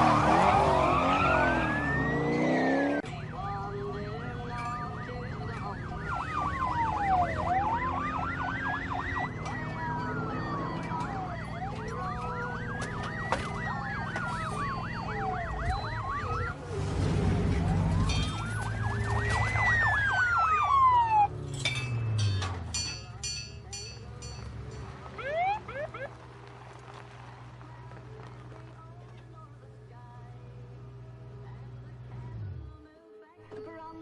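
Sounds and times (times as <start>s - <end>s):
police siren wailing: 0.0s - 3.0s, 3.7s - 16.8s, 17.5s - 21.4s, 25.1s - 26.3s
siren yelping: 0.0s - 3.0s, 4.6s - 16.6s, 17.8s - 21.4s, 25.2s - 26.2s
car engine drone: 0.0s - 32.8s.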